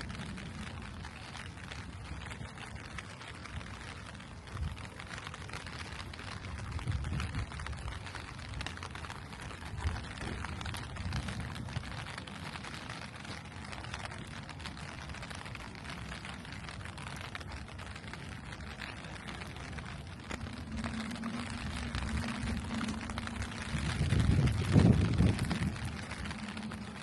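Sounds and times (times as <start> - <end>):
low steady hum: 0.0 - 27.0
steady rain falling: 0.0 - 27.0
low rush: 15.5 - 27.0.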